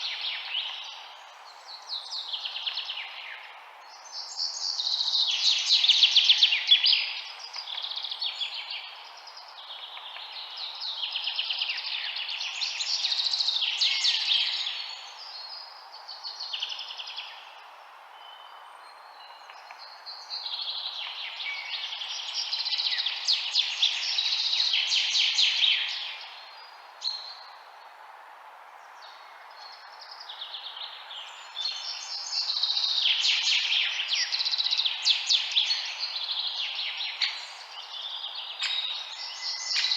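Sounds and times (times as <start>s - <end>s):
steady background hiss: 0.0s - 39.9s
birds chirping and trilling: 18.3s - 27.6s, 29.0s - 39.9s.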